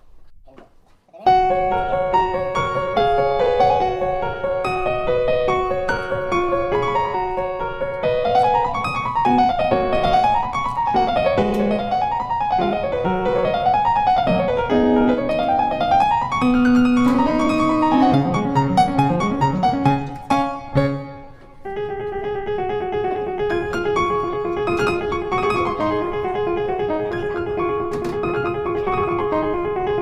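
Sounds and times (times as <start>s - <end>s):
piano music: 1.2s - 30.0s.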